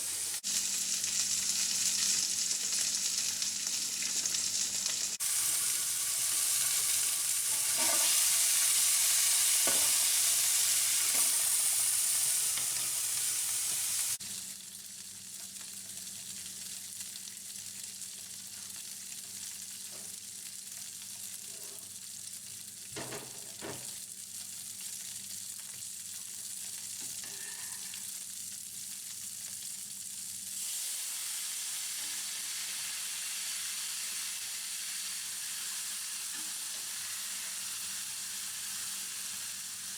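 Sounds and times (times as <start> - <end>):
sausage sizzling in a pan: 0.0 - 39.9
utensil knocking in pan: 9.6 - 10.0, 23.0 - 23.9.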